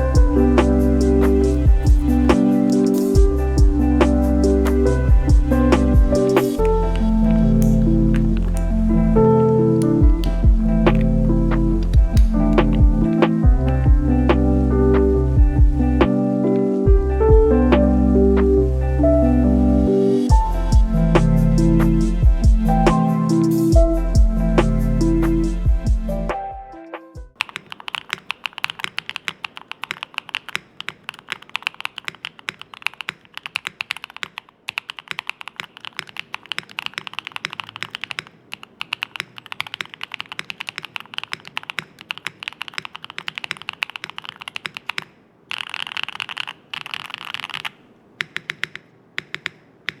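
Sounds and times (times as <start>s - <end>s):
mechanical keyboard typing: 0.0s - 14.0s, 27.4s - 50.0s.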